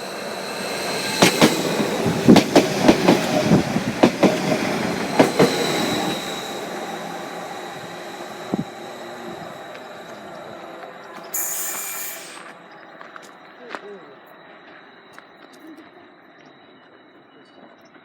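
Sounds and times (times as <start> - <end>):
train rumble: 0.0 - 14.9
train wheels clacking over rail joints: 1.2 - 6.5.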